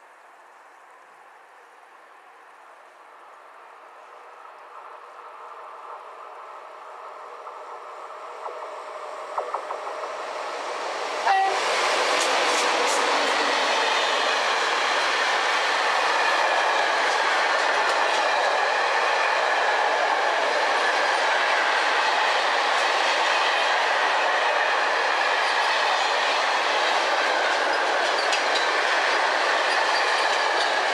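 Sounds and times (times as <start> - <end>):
freight train wheels rumbling: 4.0 - 30.9
wheels clacking over rail joints: 8.4 - 19.2, 25.4 - 30.9.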